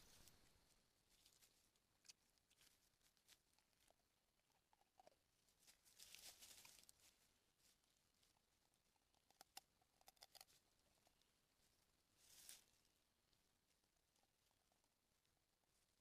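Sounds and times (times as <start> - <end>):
rustling on the ground: 0.0 - 4.0, 5.4 - 8.6, 10.4 - 14.5.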